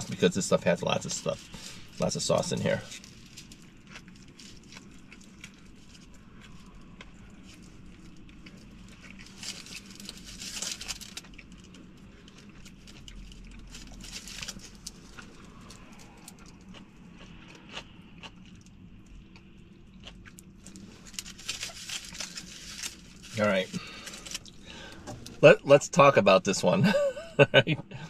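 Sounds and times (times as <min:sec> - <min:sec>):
foil wrapper rustling: 0:00.0 - 0:06.8, 0:07.4 - 0:16.1, 0:20.6 - 0:25.0
steady low hum: 0:00.0 - 0:28.0
person chewing: 0:01.3 - 0:25.4.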